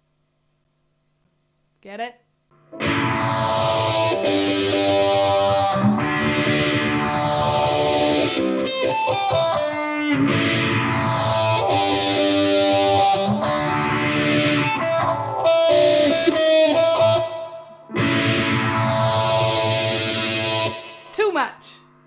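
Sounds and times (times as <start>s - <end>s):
distorted electric ukulele: 2.6s - 21.2s.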